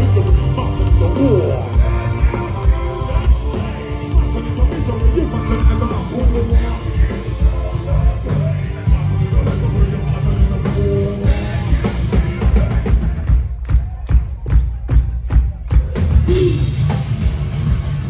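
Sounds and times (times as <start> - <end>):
heavy rock music: 0.0 - 18.0.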